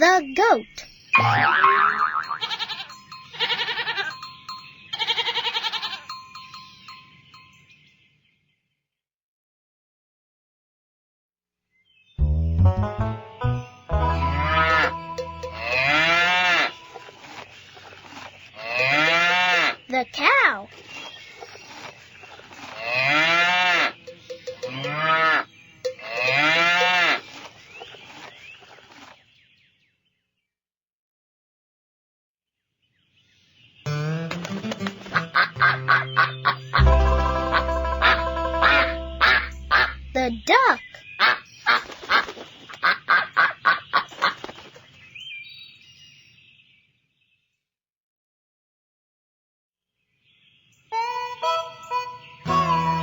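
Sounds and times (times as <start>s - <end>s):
duck quacking: 14.1s - 16.8s, 34.0s - 40.3s, 42.8s - 44.4s
cow mooing: 14.4s - 16.9s, 22.8s - 24.0s, 24.7s - 25.4s, 26.0s - 27.2s
high drawn-out bird call: 35.1s - 36.8s, 37.5s - 44.4s.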